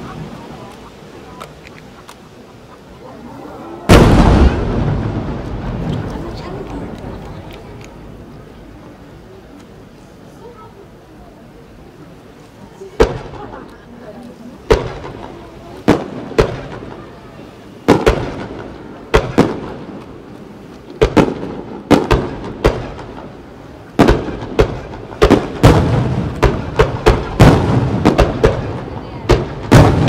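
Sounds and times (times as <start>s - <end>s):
firework shells bursting: 17.8s - 30.0s.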